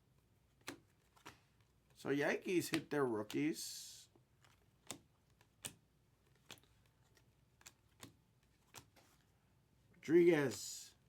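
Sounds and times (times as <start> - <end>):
trading cards flipping clicks: 0.6 - 1.4, 4.4 - 9.0.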